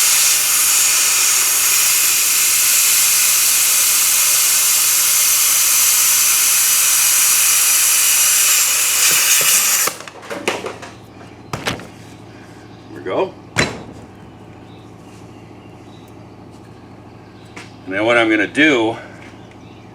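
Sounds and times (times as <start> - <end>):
air hose hissing: 0.0 - 10.0
light knocks: 10.3 - 12.0.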